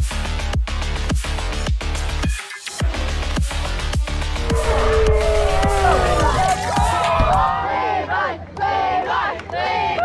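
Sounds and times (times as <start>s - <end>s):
crowd shouting and cheering: 4.2s - 10.0s.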